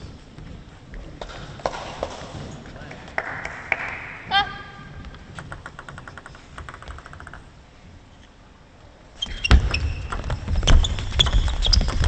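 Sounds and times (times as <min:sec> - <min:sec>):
crowd clapping and cheering: 0:03.0 - 0:04.3
table tennis ball bouncing: 0:05.3 - 0:07.5.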